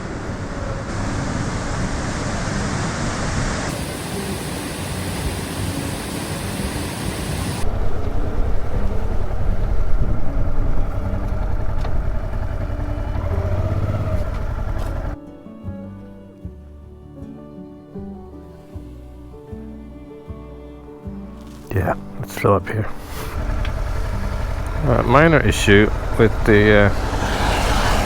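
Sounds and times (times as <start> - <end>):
wind rush: 0.0 - 11.7
motorcycle road noise: 0.0 - 15.2, 21.5 - 28.0.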